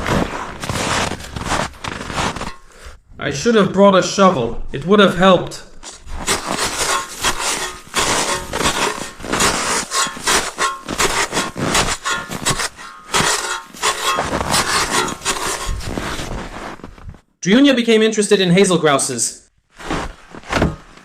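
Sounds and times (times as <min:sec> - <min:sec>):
hard object scraping and dragging: 0:00.0 - 0:02.8, 0:05.9 - 0:17.0.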